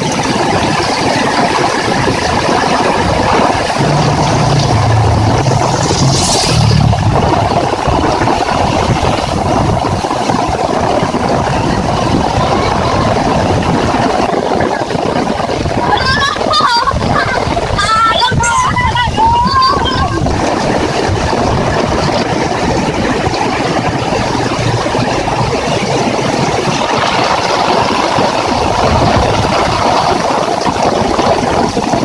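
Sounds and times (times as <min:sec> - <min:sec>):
heavy rain falling: 0:00.0 - 0:32.0
vehicle engine hum: 0:02.4 - 0:14.5.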